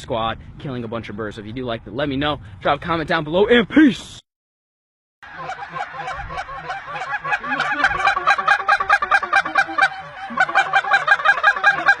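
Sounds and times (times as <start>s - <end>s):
geese honking: 5.2s - 12.0s.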